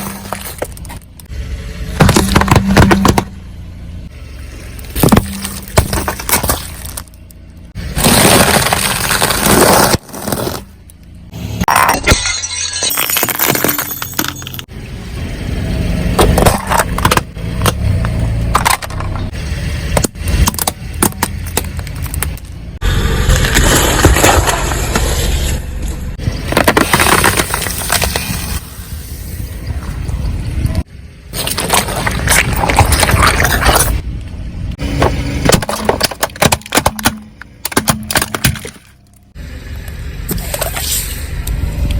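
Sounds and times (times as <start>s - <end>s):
low engine rumble: 0.0s - 11.7s, 13.8s - 41.9s
tyres crushing objects: 1.9s - 3.4s, 4.8s - 10.8s, 11.6s - 14.7s, 16.2s - 22.6s, 23.2s - 25.2s, 26.2s - 28.6s, 31.3s - 34.0s, 34.8s - 39.2s.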